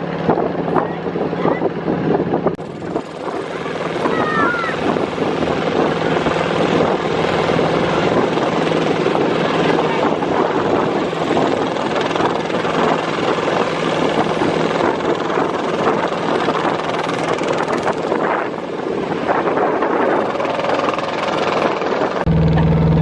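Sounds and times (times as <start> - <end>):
motorboat engine chugging: 22.3 - 23.0.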